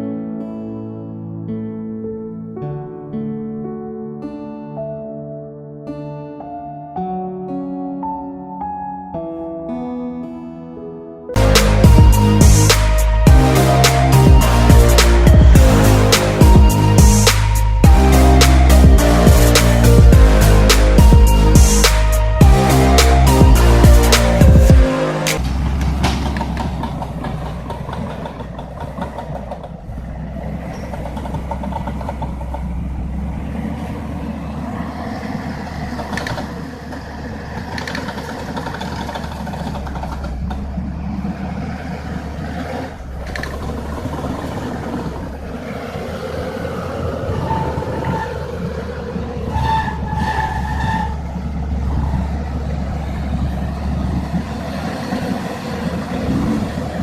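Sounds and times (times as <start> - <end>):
rattling noise: 11.4 - 34.2, 35.4 - 41.6
heavy vehicle engine running: 11.4 - 57.0.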